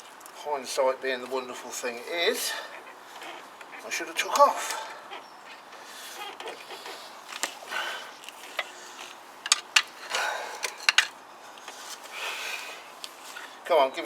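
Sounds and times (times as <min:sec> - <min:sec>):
metallic clicks and knocks: 0:09.4 - 0:09.9, 0:10.7 - 0:11.1.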